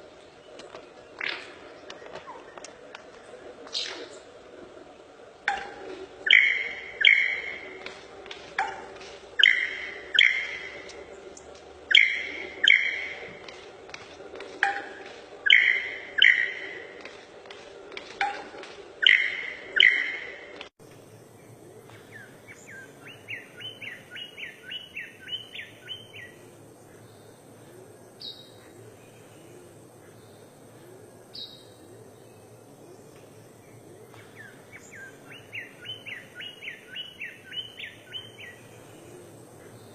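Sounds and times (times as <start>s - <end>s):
bird chirping rapidly: 6.3s - 7.7s, 9.4s - 10.8s, 11.9s - 13.3s, 15.5s - 16.7s, 22.1s - 26.4s, 34.3s - 39.0s.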